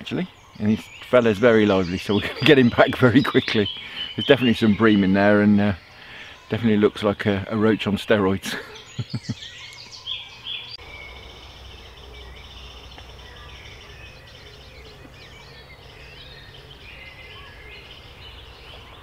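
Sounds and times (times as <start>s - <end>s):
songbirds singing and chirping: 0.0s - 19.0s.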